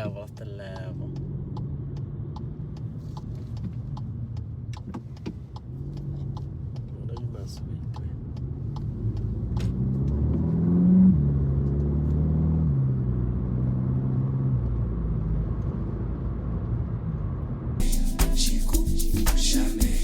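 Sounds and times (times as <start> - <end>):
car engine accelerating: 0.7 - 17.8.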